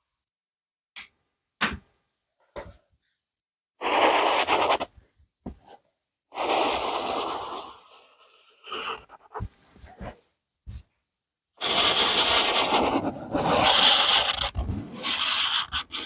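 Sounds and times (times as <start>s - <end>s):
rapid scribbling on paper: 3.8s - 4.9s, 11.6s - 16.0s.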